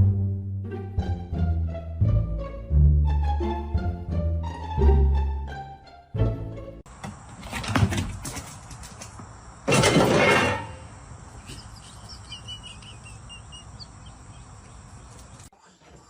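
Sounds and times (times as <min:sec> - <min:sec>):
faint high chirps: 0:11.3 - 0:15.5.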